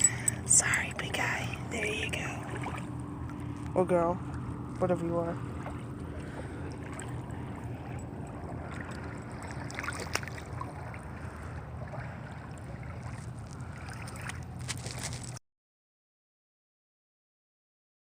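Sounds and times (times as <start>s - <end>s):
low steady hum: 0.0s - 15.4s
shallow water: 0.0s - 15.4s
light taps or splashes: 2.2s - 15.4s.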